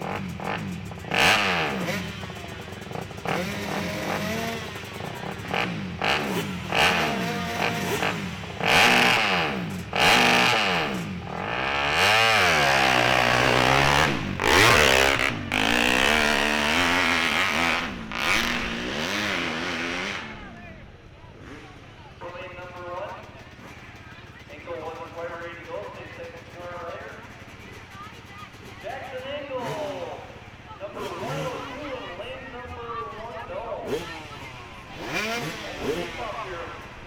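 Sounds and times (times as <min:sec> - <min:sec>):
motorcycle engine revving hard: 0:00.0 - 0:22.0, 0:29.5 - 0:37.0.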